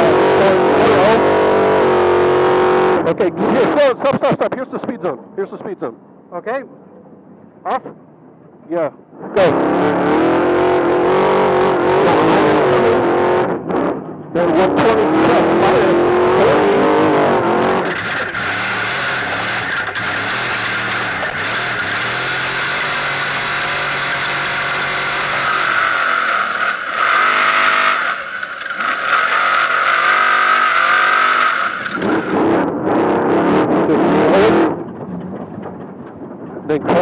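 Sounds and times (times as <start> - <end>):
truck engine revving: 0.0 - 3.2, 9.4 - 35.0
wind and road noise: 0.0 - 37.0.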